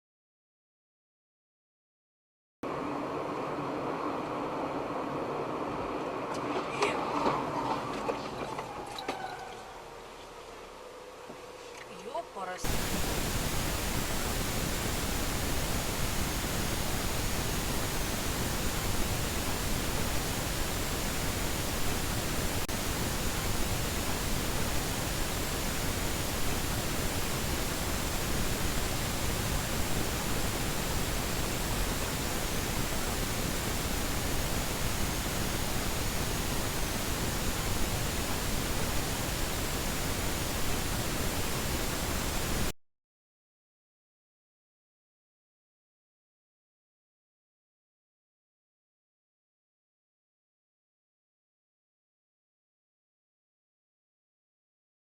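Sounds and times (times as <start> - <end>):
static hiss: 12.6 - 42.7.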